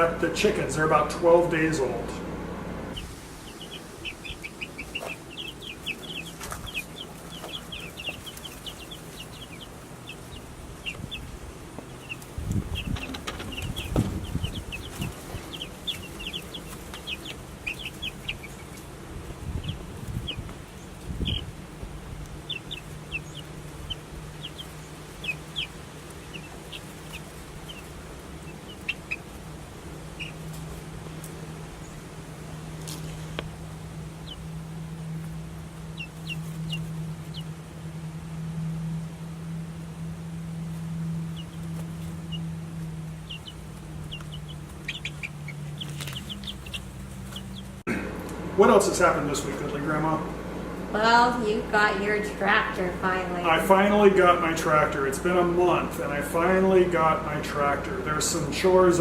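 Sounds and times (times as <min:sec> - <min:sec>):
chicks peeping: 0:00.0 - 0:37.8, 0:40.5 - 0:51.0
low hum: 0:00.0 - 0:59.0
low thumps: 0:04.2 - 0:24.6.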